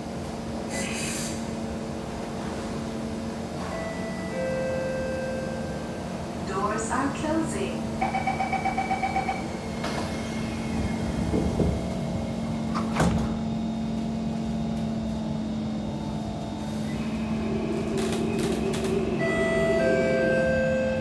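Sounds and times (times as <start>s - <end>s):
steady train hum: 0.0s - 21.0s
traction motors whining: 8.6s - 21.0s
sliding doors knocking shut: 12.7s - 13.4s.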